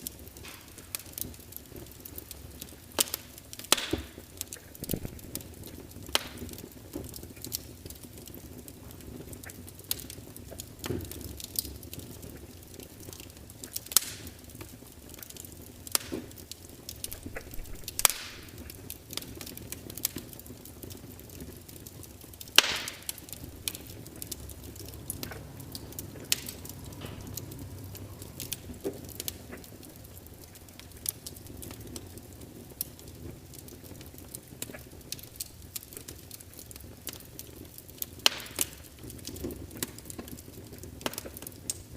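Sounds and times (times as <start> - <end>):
log fire crackling and popping: 0.0 - 41.9.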